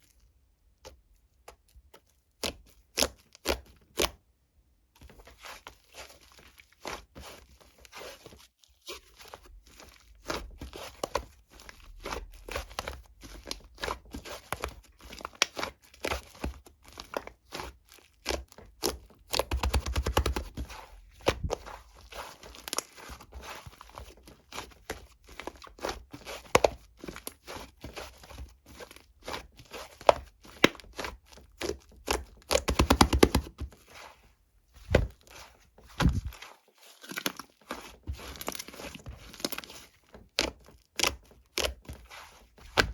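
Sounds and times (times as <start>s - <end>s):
slime squished by hand: 34.8s - 42.9s.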